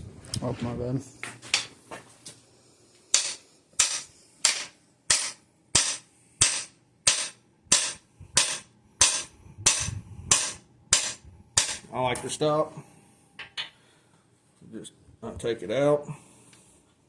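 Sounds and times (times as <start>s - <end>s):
hammer striking metal: 3.1s - 12.0s.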